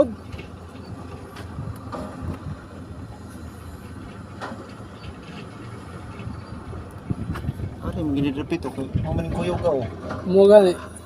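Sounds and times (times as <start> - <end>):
low mechanical rumble: 0.0 - 11.0.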